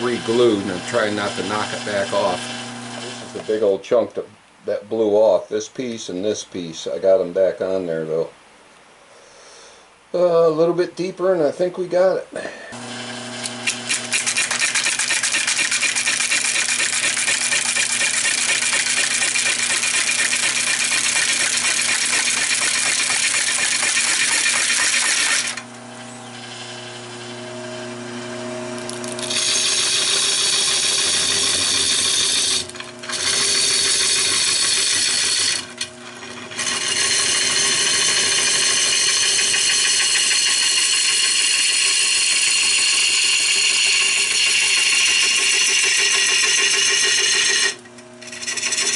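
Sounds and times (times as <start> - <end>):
gouge scraping wood on lathe: 0.0 - 3.6, 12.8 - 25.7, 26.4 - 48.9
lathe motor hum: 0.0 - 3.6, 12.8 - 48.9.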